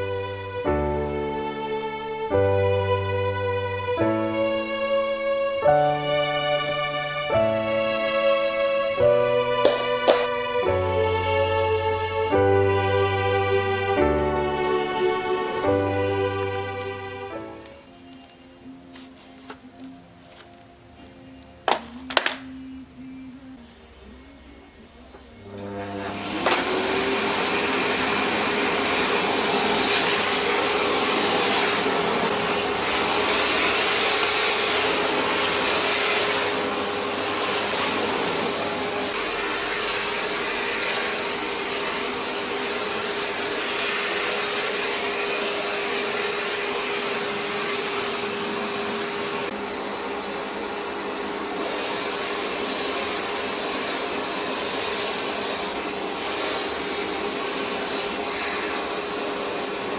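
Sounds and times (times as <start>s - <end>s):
appliance motor humming: 25.4s - 59.9s.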